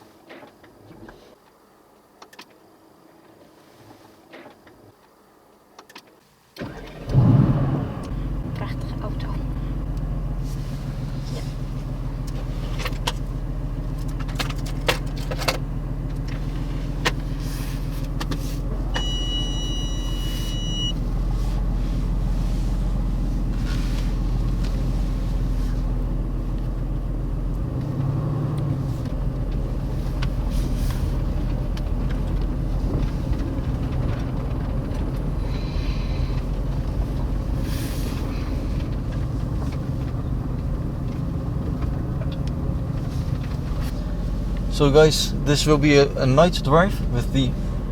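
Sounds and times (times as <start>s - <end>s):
car engine idling: 6.6s - 47.9s
electronic beep: 19.0s - 21.0s.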